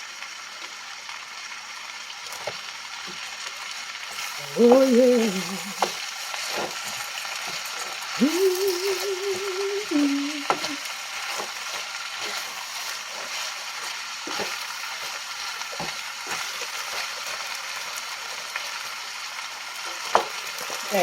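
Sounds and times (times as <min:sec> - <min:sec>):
vegetables sizzling in a frying pan: 0:00.0 - 0:21.0
wavering hummed note: 0:08.2 - 0:10.8
utensil tapping a pan: 0:10.4 - 0:13.4, 0:14.3 - 0:17.0, 0:19.9 - 0:20.4.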